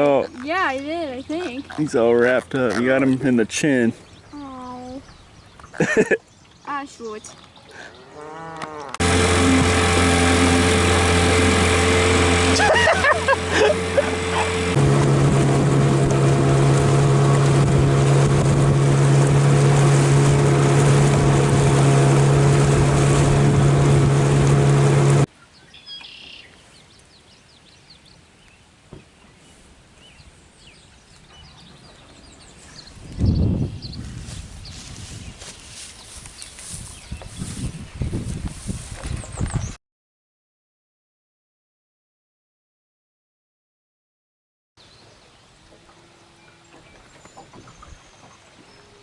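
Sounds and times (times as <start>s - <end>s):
small birds chirping: 0.0s - 9.0s, 25.4s - 38.4s
engine running: 8.9s - 25.3s.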